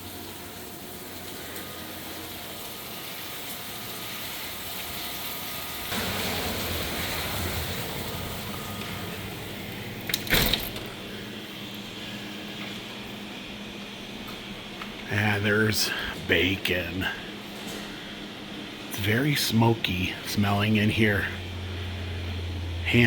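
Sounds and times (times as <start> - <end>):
heavy rain hissing: 0.0 - 12.6.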